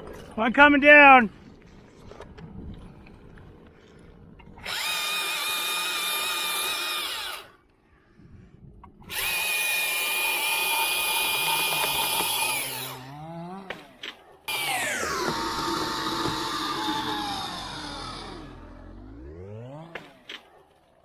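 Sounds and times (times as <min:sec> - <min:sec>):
chainsaw cutting a limb: 0:04.6 - 0:07.6, 0:09.0 - 0:20.6.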